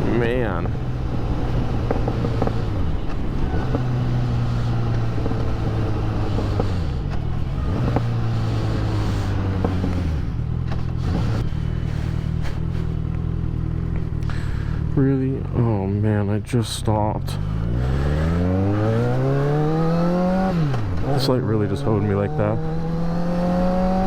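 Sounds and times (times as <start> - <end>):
motorcycle engine running: 0.0 - 16.2
wind and road noise: 0.0 - 24.0.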